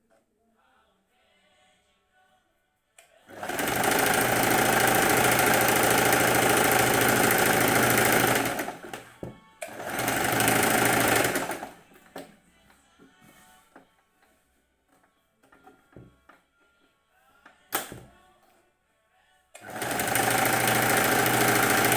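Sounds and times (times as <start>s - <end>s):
sewing machine running: 3.3s - 9.1s, 9.7s - 11.8s, 19.6s - 21.9s
sewing machine clicks: 3.3s - 11.7s, 19.6s - 21.9s.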